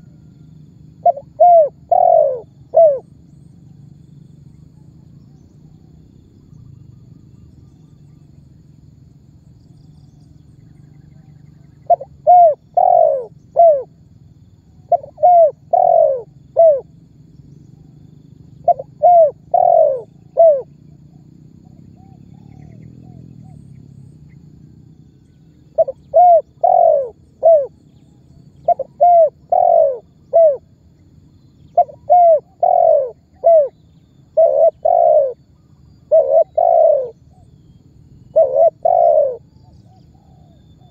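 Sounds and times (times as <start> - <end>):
dove cooing: 0.0 - 3.2, 10.7 - 14.0, 14.6 - 16.9, 18.5 - 23.7, 25.6 - 28.0, 28.6 - 30.8, 31.6 - 37.5, 38.3 - 40.9
faint low hum: 0.0 - 40.9.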